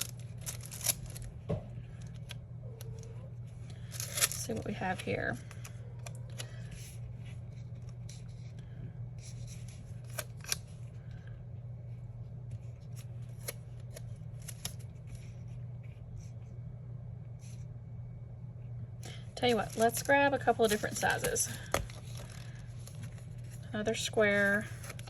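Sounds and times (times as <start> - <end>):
steady low hum: 0.0 - 25.0
paper rustling: 19.5 - 25.0.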